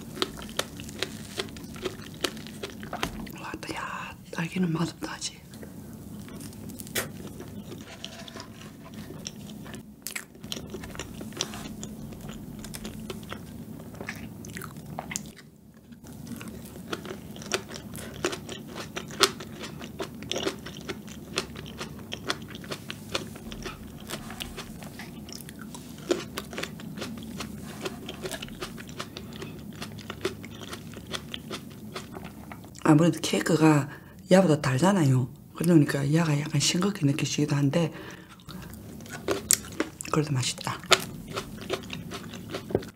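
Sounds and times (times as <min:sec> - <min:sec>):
chewing cake: 0:00.0 - 0:03.4, 0:05.5 - 0:32.8, 0:38.1 - 0:42.9.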